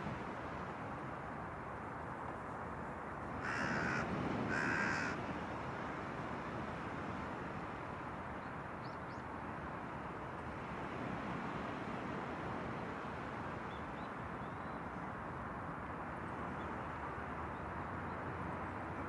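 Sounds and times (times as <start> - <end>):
wind: 0.0 - 19.0
crow cawing: 3.4 - 5.2.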